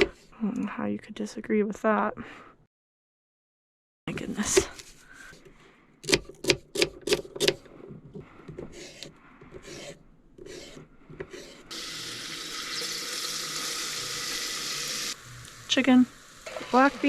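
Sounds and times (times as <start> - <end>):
rubbing and scraping of kitchen things: 4.2 - 5.5, 7.2 - 11.8
food sizzling: 11.7 - 17.0.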